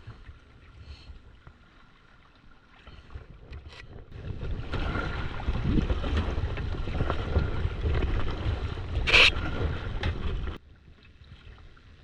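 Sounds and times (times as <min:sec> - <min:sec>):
wind buffeting microphone: 0:04.0 - 0:10.6.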